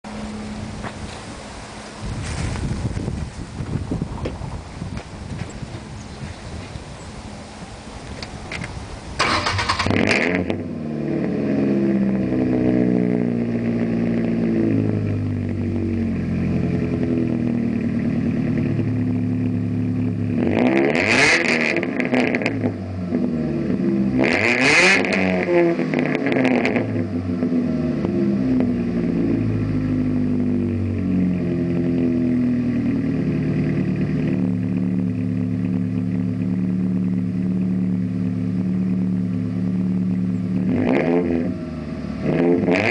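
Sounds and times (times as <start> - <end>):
car engine starting: 0.1 - 42.9
engine revving: 9.2 - 42.9
car engine idling loudly: 26.9 - 40.9.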